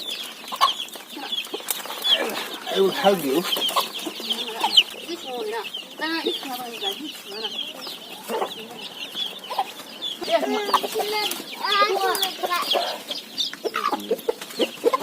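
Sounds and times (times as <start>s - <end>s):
chicks peeping: 0.0s - 15.0s
lower calls: 0.0s - 15.0s.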